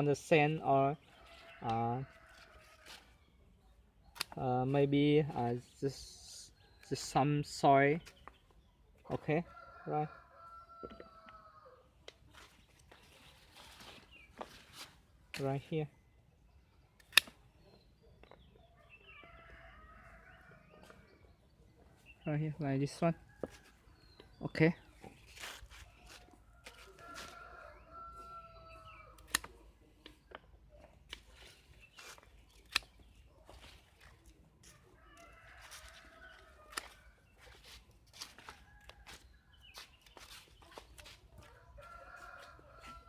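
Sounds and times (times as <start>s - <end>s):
sharp clicks: 17.0s - 17.4s.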